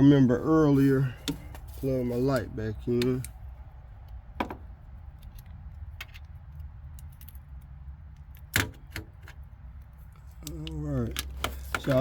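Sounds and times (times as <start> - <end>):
small metal parts clicking: 5.2 - 8.6.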